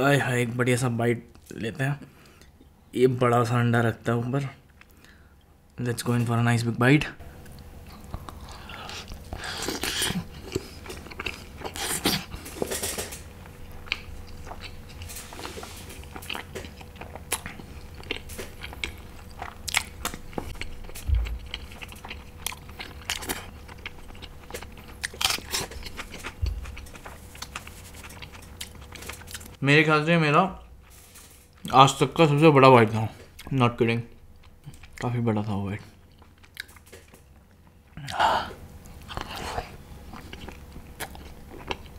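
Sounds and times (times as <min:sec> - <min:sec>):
person chewing food: 0:07.4 - 0:29.6, 0:36.0 - 0:41.9.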